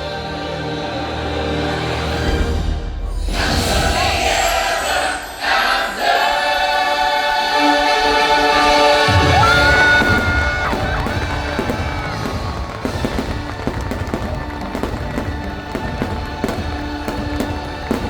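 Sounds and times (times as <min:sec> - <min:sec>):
choir singing held chords: 0:00.0 - 0:18.0
orchestral music: 0:00.0 - 0:18.0
fireworks bursting and crackling: 0:09.1 - 0:18.0.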